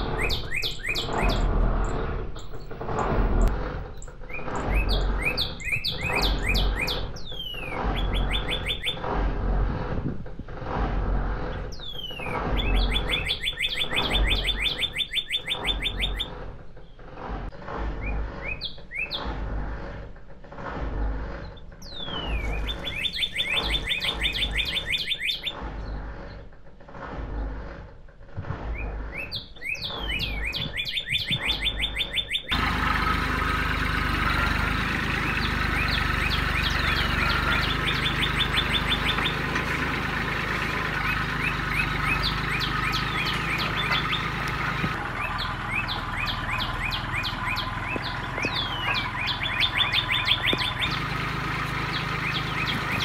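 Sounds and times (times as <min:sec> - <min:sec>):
small birds chirping: 0:00.0 - 0:09.1, 0:11.2 - 0:19.8, 0:21.0 - 0:26.5, 0:28.6 - 0:53.0.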